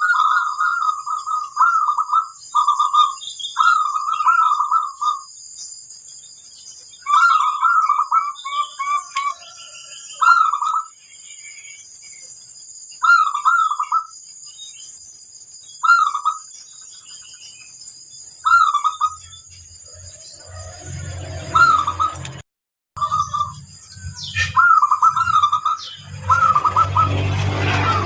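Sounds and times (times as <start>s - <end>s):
dove cooing trill: 0.0s - 5.3s, 7.0s - 11.0s, 13.0s - 14.1s, 15.8s - 16.4s, 24.2s - 28.0s.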